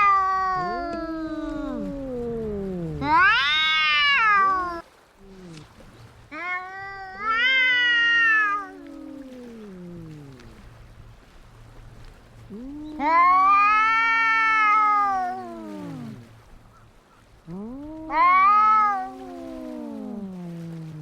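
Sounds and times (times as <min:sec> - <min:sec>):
cats yowling: 0:00.0 - 0:04.8, 0:06.3 - 0:10.6, 0:12.5 - 0:16.3, 0:17.4 - 0:21.0.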